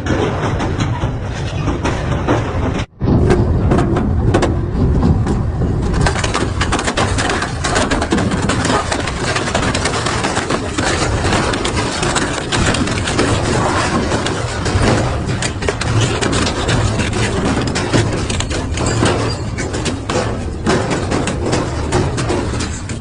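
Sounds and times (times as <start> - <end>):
sharp cracks and bangs: 0.0 - 23.0
shredder grinding metal scrap: 6.1 - 23.0.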